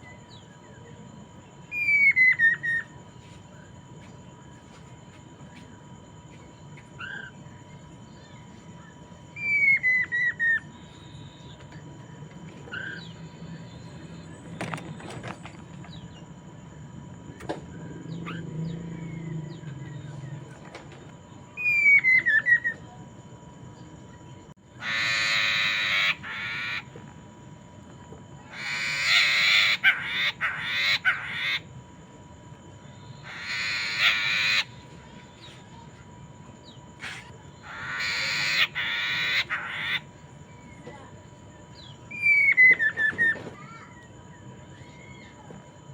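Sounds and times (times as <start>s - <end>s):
bird harsh chattering calls: 24.8s - 26.9s, 28.5s - 31.7s, 33.2s - 34.8s, 37.0s - 40.2s.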